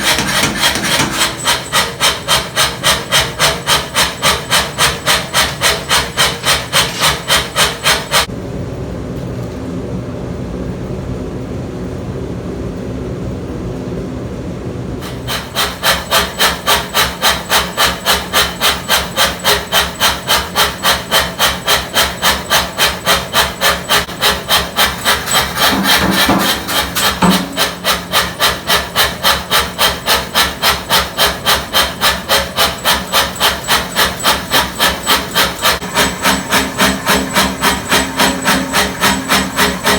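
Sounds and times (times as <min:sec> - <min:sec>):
machine running: 0:00.0 - 0:08.3, 0:15.0 - 0:39.9
power hammer striking steel: 0:00.0 - 0:08.3, 0:15.0 - 0:39.9.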